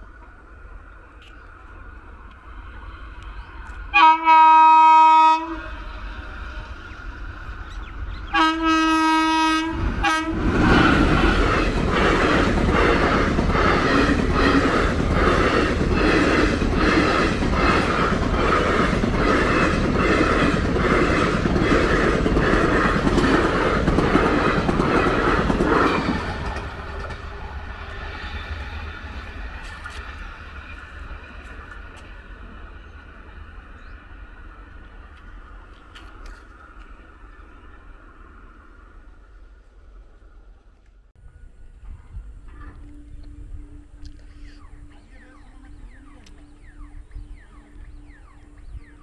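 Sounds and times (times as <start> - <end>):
train horn blast: 3.9 - 5.8, 8.3 - 10.5
wheels clickety-clack over rail joints: 9.6 - 37.7.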